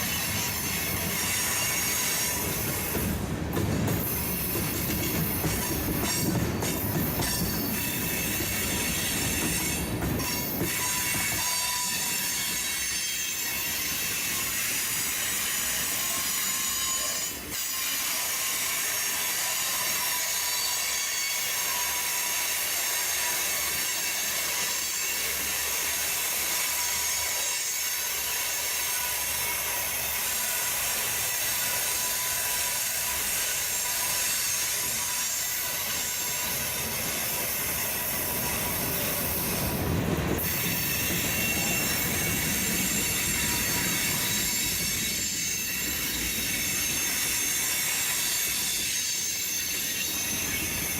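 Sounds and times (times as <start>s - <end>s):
low train rumble: 0.0s - 17.6s, 28.6s - 50.9s
train wheels squealing on rail: 0.0s - 50.9s.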